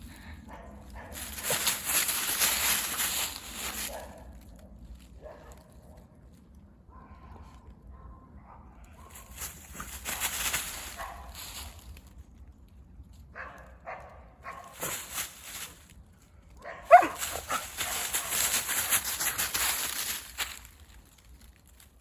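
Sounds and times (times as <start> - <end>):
footsteps crunching dry leaves: 0.9 - 4.5, 9.0 - 12.4, 14.5 - 16.1, 16.9 - 22.0.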